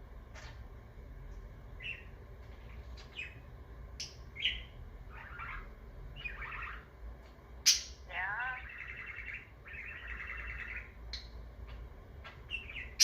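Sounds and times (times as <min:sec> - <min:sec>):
budgerigar chirping: 0:01.8 - 0:02.1, 0:03.0 - 0:03.4, 0:04.0 - 0:06.9, 0:07.6 - 0:13.0.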